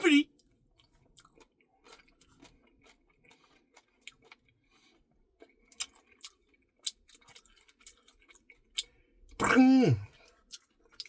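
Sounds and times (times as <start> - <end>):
mouth clicks and wet smacks: 5.5 - 9.6.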